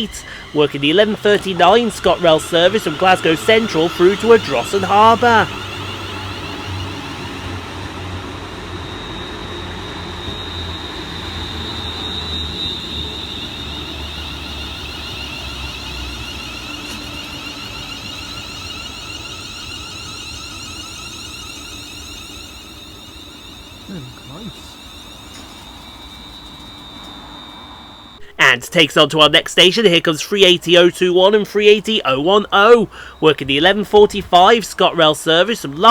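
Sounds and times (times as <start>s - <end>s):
train electric whine: 0.0s - 35.9s
train low rumble: 0.0s - 35.9s.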